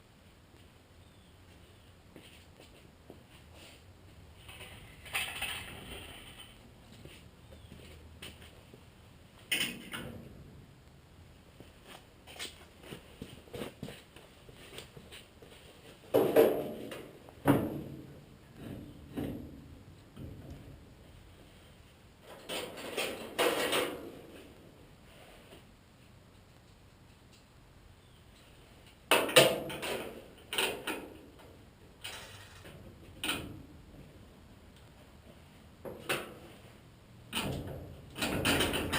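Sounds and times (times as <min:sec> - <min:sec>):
metal tools clanking and scraping: 0:32.0 - 0:32.7.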